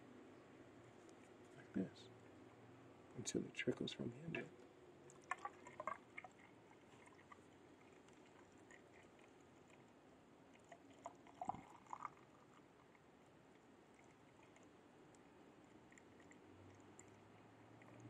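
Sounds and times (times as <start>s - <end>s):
liquid glugging and dripping: 5.0s - 18.0s.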